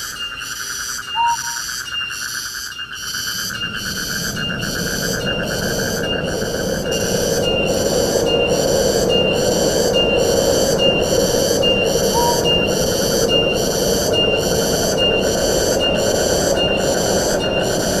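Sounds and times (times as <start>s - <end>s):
high shrill call: 1.1s - 1.7s, 12.1s - 13.5s
wind rushing through trees: 2.8s - 18.0s.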